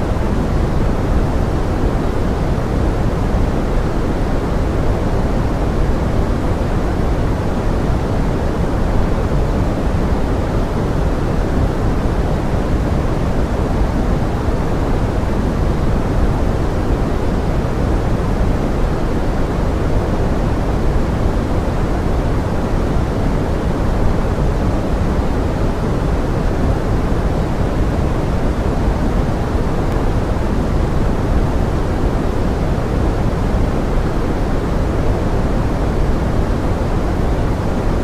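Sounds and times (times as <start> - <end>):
pink noise hiss: 0.0 - 38.0.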